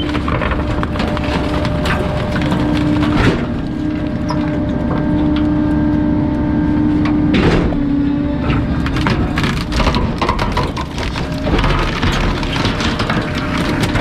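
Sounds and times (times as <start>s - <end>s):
material cracking: 0.0s - 5.5s, 8.6s - 14.0s
garbage truck compactor crushing: 0.0s - 14.0s
hydraulics humming: 0.0s - 14.0s.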